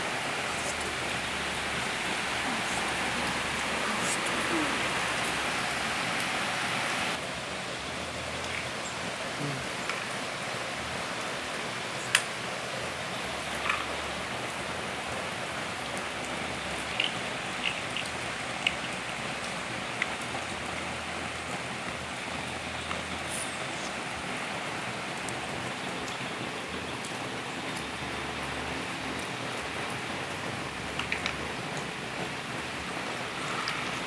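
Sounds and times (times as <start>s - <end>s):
rain-like hiss: 0.0s - 34.0s.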